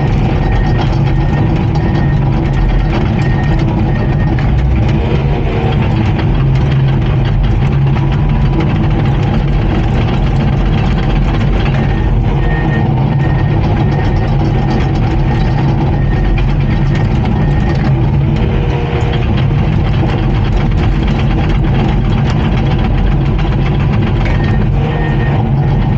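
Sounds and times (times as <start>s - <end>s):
faint beeping: 0.0s - 19.7s
bulldozer diesel engine clattering: 0.0s - 25.9s.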